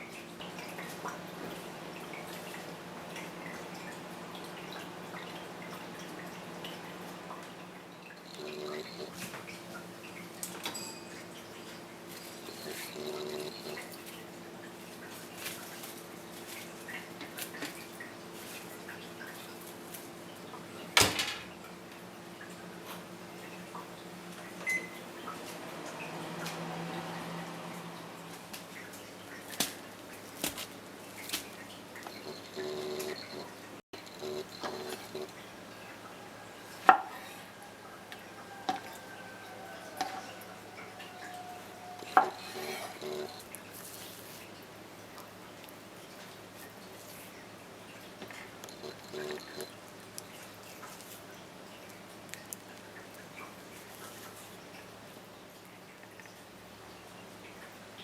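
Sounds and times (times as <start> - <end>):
soft kitchenware clatter: 10.5 - 13.0
kitchenware knocking and ringing: 10.7 - 11.1.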